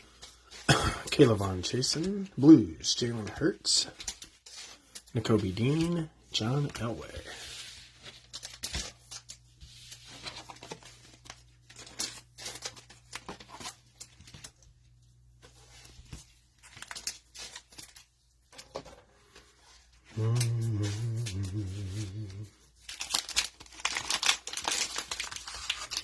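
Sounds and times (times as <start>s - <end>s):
cellophane wrapper crinkling and tearing: 7.8s - 14.8s, 15.5s - 18.6s, 20.1s - 26.0s.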